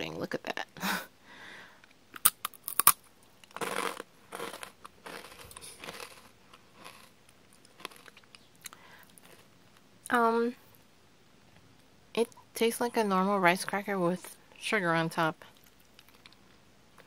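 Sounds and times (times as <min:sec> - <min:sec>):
cracker crunching: 0:02.2 - 0:09.8
soft chewing: 0:03.4 - 0:10.1, 0:15.4 - 0:17.0.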